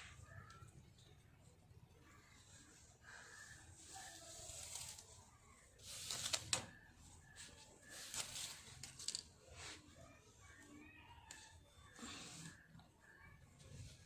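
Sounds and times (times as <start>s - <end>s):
hair rustling through fingers: 3.2s - 10.6s.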